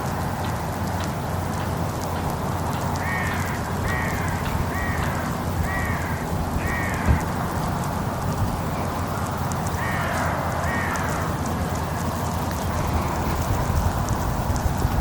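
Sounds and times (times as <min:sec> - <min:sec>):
wind-like background noise: 0:00.0 - 0:15.0
bird harsh calls: 0:03.0 - 0:07.3.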